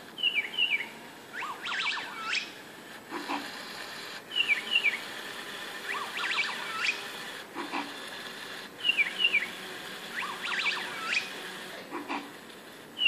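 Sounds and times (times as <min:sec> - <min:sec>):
recorded bird chirps and whistles: 0:00.2 - 0:02.6, 0:04.3 - 0:05.0, 0:05.9 - 0:07.0, 0:08.8 - 0:09.5, 0:10.1 - 0:11.3.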